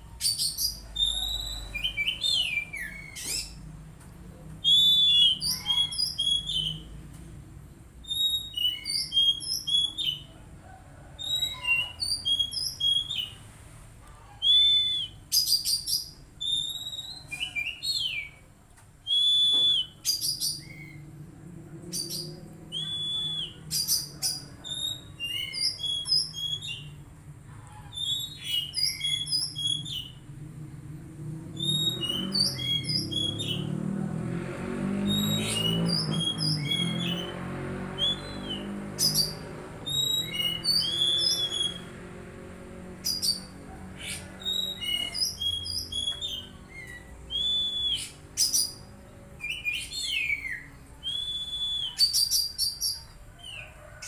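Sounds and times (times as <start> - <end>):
bird whistling and chirping: 0.2 - 3.6, 4.6 - 6.9, 8.0 - 10.3, 11.2 - 13.4, 14.4 - 18.4, 19.1 - 21.0, 22.0 - 26.9, 27.9 - 30.2, 31.6 - 33.7, 35.0 - 37.3, 38.0 - 41.9, 43.0 - 48.8, 49.4 - 53.6.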